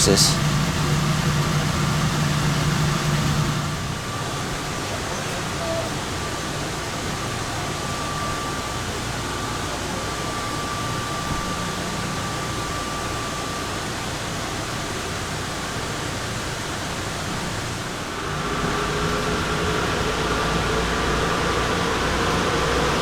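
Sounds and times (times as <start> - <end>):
train ride rushing noise: 0.0 - 13.2, 14.0 - 23.0
faint high whine: 0.0 - 14.3.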